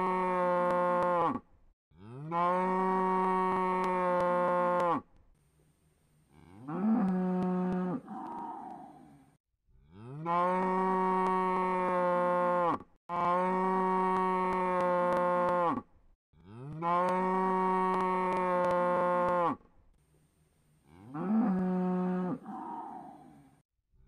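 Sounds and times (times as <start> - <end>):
cow mooing: 6.4 - 9.2, 9.9 - 15.8, 16.4 - 19.6, 20.9 - 23.5.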